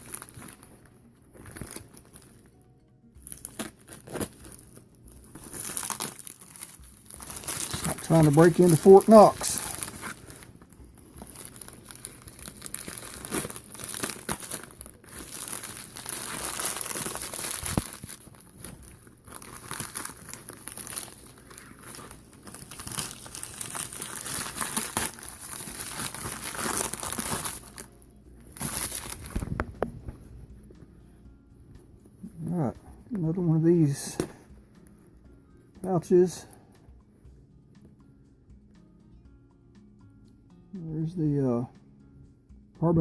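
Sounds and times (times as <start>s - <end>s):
parcel packaging crinkling and tearing: 0.0s - 2.6s, 3.2s - 30.0s.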